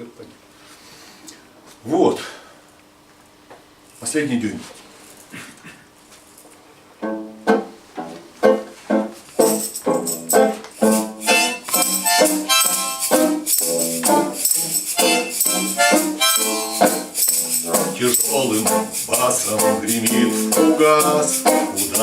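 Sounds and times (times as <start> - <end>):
rattling hand percussion: 9.4 - 22.0
rhythmic chords: 9.4 - 22.0.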